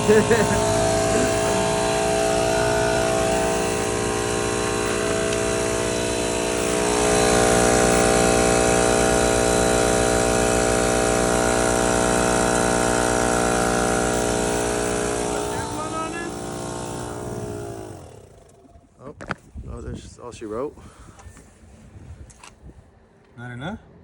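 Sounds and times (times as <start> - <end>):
air compressor running: 0.0 - 18.8
generator engine running: 0.0 - 19.0.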